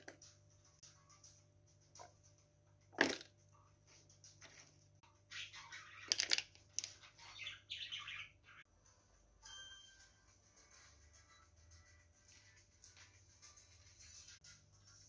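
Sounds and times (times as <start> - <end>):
bird chirping: 5.1 - 8.7.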